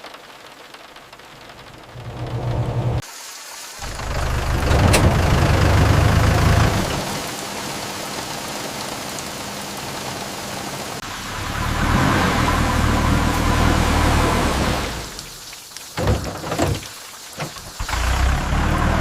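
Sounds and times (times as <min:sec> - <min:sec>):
rain on roof and windows: 0:00.0 - 0:19.0
bus engine hum: 0:01.5 - 0:03.0, 0:03.8 - 0:07.2, 0:11.0 - 0:15.2, 0:17.8 - 0:19.0.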